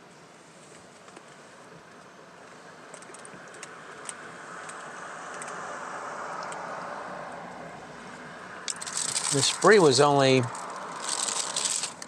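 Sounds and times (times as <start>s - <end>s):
light clicks and ticks: 2.9s - 5.6s, 6.4s - 6.7s
car driving past: 3.4s - 11.9s.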